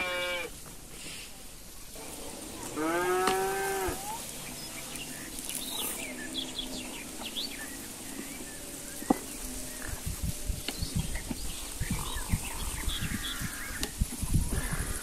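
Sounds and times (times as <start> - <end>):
cow mooing: 2.5 - 4.3.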